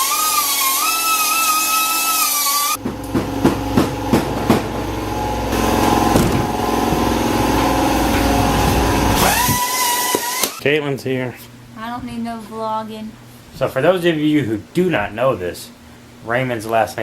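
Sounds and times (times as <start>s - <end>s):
power tool whining: 0.0s - 3.2s, 4.8s - 10.6s
sharp knocks: 2.8s - 4.9s, 5.8s - 7.2s
low mechanical rumble: 2.8s - 9.6s.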